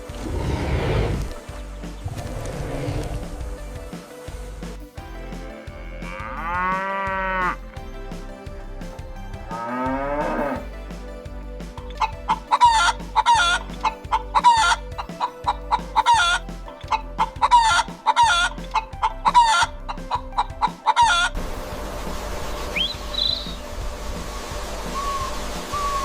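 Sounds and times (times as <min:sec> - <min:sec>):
cow mooing: 0:05.9 - 0:07.6, 0:09.5 - 0:10.6
chicken clucking: 0:12.0 - 0:21.3.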